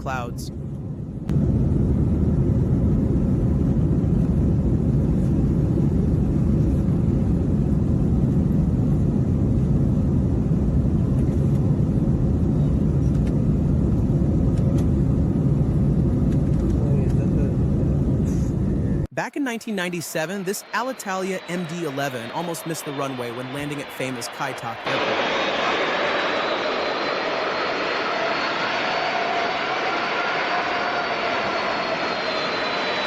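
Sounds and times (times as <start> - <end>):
airliner engines rumbling: 0.0 - 33.0.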